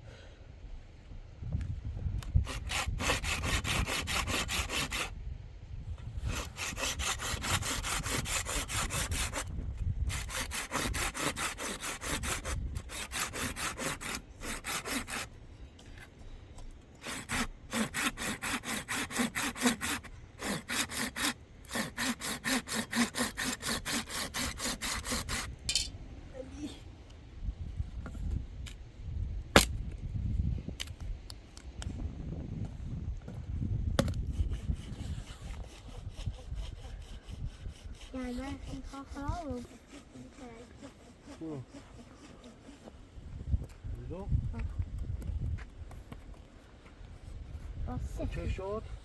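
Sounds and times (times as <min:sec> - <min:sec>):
rhythmic rasping strokes: 0:10.1 - 0:15.3.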